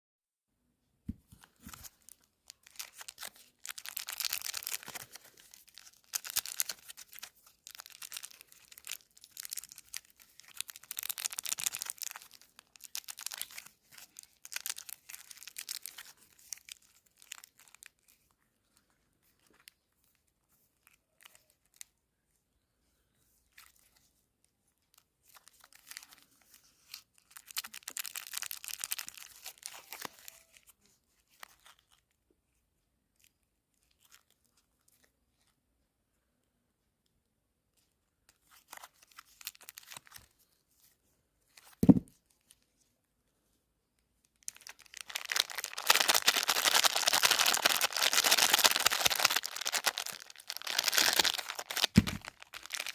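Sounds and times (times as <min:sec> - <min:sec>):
wrappers crinkling and rustling: 0:01.3 - 0:21.9, 0:24.8 - 0:32.1, 0:38.4 - 0:42.9, 0:44.3 - 0:52.9.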